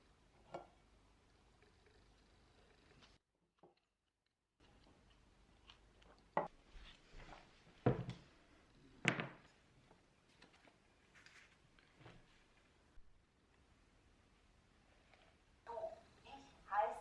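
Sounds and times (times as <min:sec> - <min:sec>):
small handling sounds: 0:09.4 - 0:13.7.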